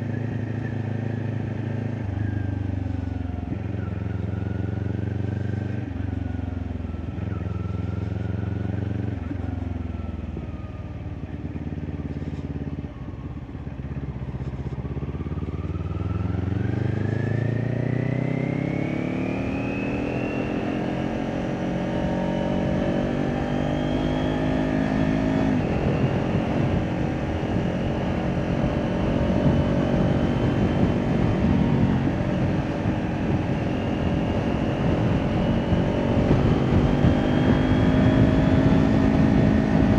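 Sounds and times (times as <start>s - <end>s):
motorcycle engine accelerating: 0.0s - 39.9s
rushing wind: 21.8s - 39.9s.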